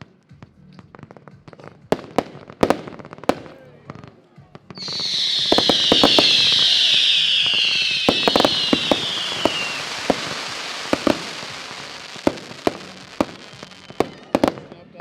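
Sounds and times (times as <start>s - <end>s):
fireworks crackle: 4.7s - 15.0s
fireworks hissing: 4.8s - 14.6s.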